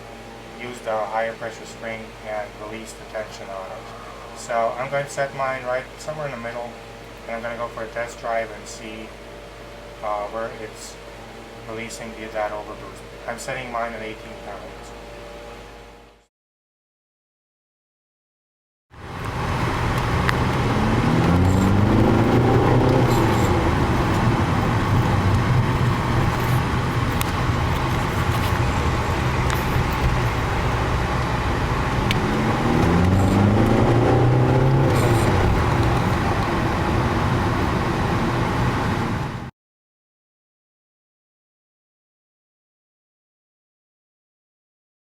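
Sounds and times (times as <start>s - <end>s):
car engine accelerating: 19.0s - 39.5s
road noise: 19.0s - 39.5s.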